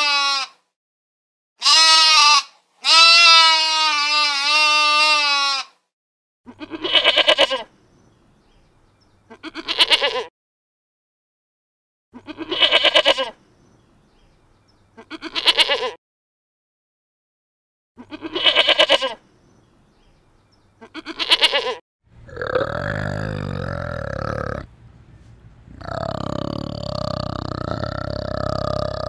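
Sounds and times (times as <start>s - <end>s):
sheep bleating: 0.0s - 0.6s, 1.6s - 5.8s, 6.5s - 7.7s, 9.3s - 10.3s, 12.2s - 13.4s, 15.0s - 16.0s, 18.0s - 19.2s, 20.8s - 24.7s
young goat bleating: 0.0s - 0.6s, 1.6s - 5.8s, 6.5s - 7.7s, 9.3s - 10.3s, 12.2s - 13.4s, 14.9s - 16.0s, 18.0s - 19.2s, 20.8s - 24.7s.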